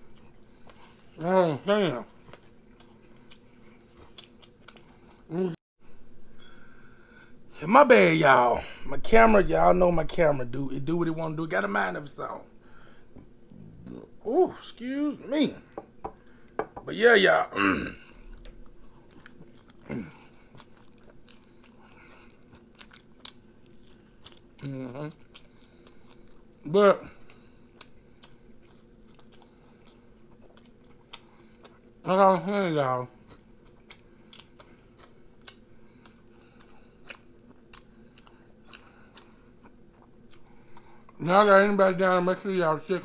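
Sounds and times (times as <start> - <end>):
man chewing food: 0.0 - 7.5, 17.9 - 32.1, 33.0 - 41.3
faint steady hum: 0.0 - 43.0
man humming: 5.3 - 5.6.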